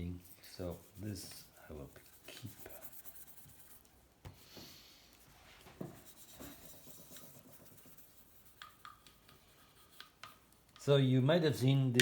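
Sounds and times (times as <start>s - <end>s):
light rubbing at a workbench: 0.0s - 10.5s.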